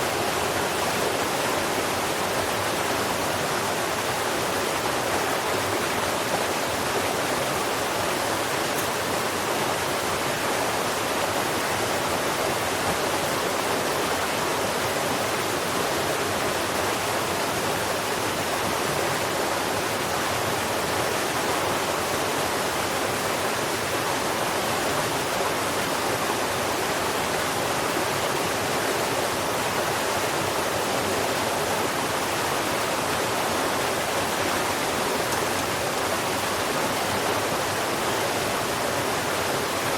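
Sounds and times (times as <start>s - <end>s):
rushing running water: 0.0s - 39.9s.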